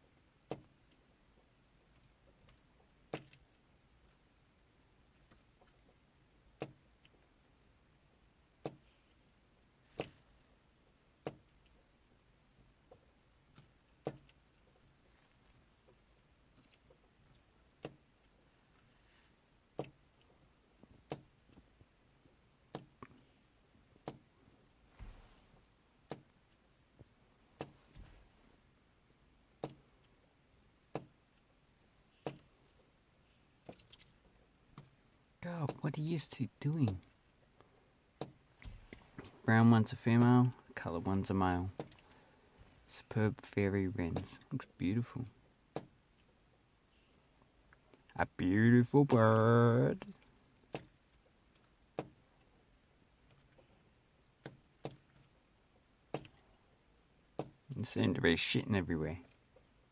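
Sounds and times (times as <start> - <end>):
birds tapping on a car: 0.1 - 43.2, 44.0 - 57.8
faint high bird chirps: 30.0 - 34.1.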